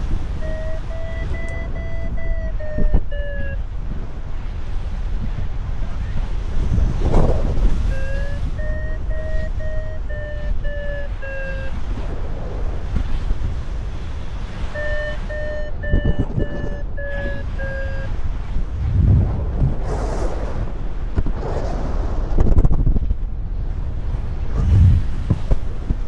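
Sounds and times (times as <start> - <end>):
variometer short beeps: 0.0 - 3.7, 7.9 - 12.0, 14.6 - 19.0
wind noise on microphone: 0.0 - 26.0.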